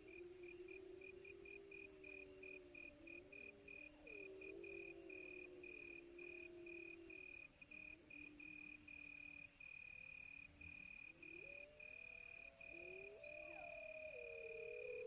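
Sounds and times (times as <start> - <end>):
crickets trilling: 0.0 - 15.0
distant wolves howling: 11.2 - 15.0.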